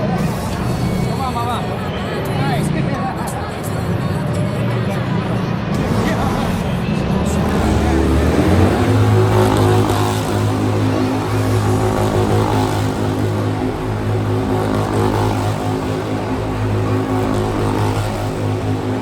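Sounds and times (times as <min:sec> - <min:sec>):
engine humming steadily: 0:05.0 - 0:19.0.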